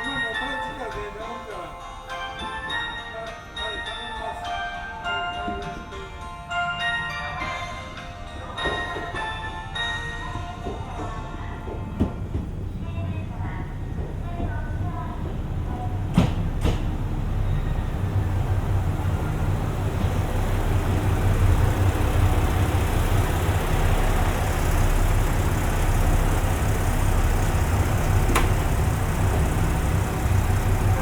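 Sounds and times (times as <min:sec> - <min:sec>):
diesel train rumbling: 0:08.3 - 0:31.0.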